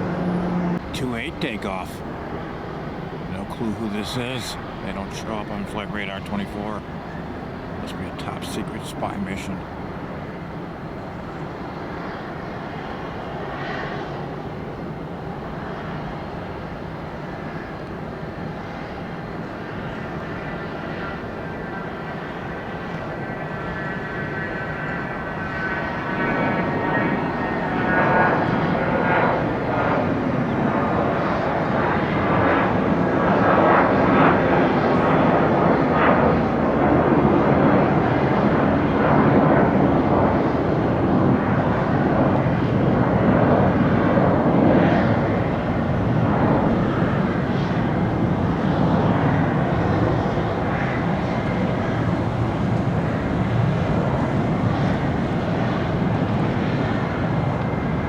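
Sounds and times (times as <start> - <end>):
high engine whine: 0.0 - 58.0
jet engines at takeoff: 0.0 - 58.0.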